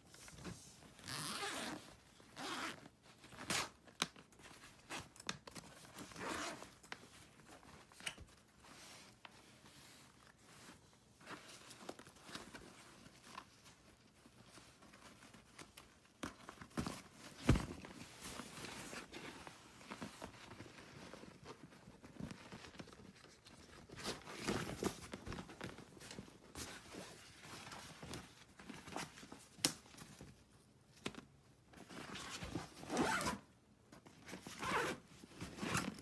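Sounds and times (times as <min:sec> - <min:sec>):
zipper being pulled: 0:01.0 - 0:01.8, 0:02.4 - 0:02.8, 0:06.2 - 0:06.6, 0:32.2 - 0:33.4, 0:34.6 - 0:35.0.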